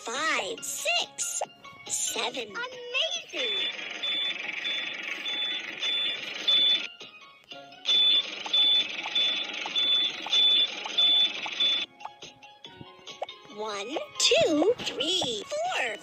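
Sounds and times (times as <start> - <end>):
background music: 0.0 - 3.7, 5.2 - 10.4, 11.1 - 16.0
short high electronic beeps: 3.4 - 6.9, 7.9 - 11.9.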